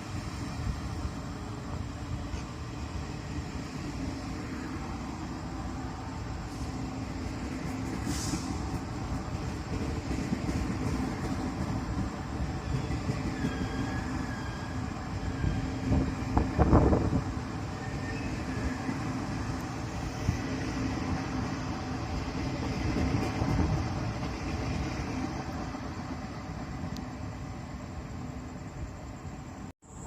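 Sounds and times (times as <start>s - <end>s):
train rumbling: 0.0s - 30.0s
brief high hiss: 8.0s - 8.7s
wheel squeal: 12.6s - 16.2s, 17.7s - 19.0s.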